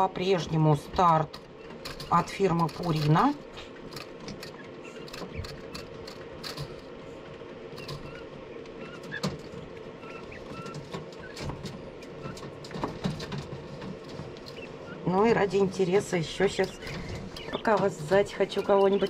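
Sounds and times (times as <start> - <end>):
steady low hum: 0.0 - 19.0
quail chicks cheeping: 3.7 - 6.8, 7.7 - 13.2, 14.1 - 19.0.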